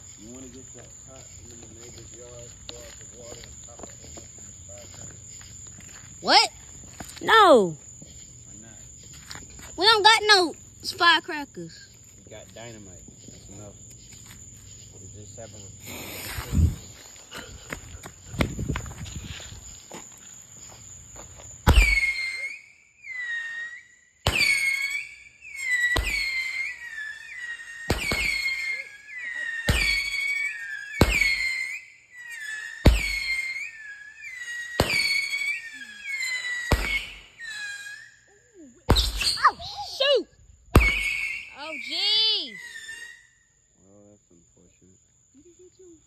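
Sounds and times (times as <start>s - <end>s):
firework whistles: 15.8s - 17.5s, 21.6s - 43.6s
firework bangs: 21.6s - 22.4s, 24.2s - 33.6s, 34.4s - 37.8s, 38.9s - 39.8s, 40.7s - 41.5s.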